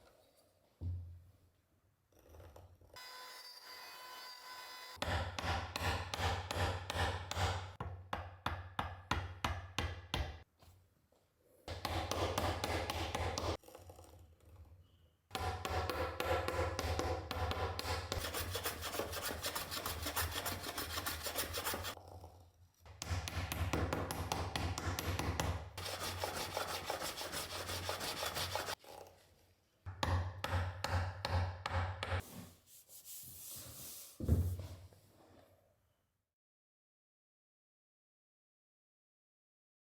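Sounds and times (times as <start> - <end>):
hand tool rubbing on wood: 18.0 - 22.0, 25.8 - 28.8, 32.2 - 34.2.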